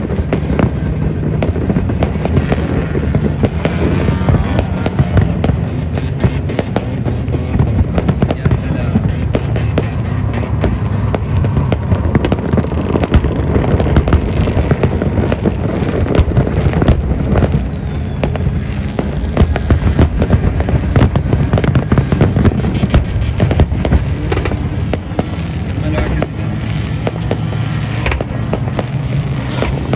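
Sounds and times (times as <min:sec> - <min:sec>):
fireworks cracks and bangs: 0:00.0 - 0:29.9.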